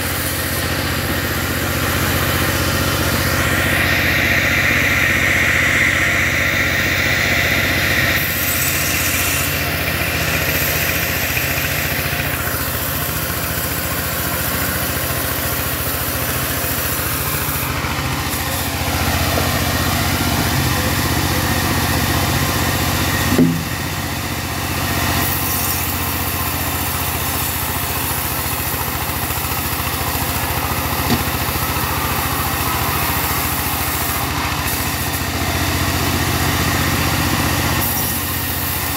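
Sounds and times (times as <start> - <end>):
saw whine: 0.0 - 38.9
sawmill engine running: 0.0 - 38.9
sharp knock: 23.3 - 23.7.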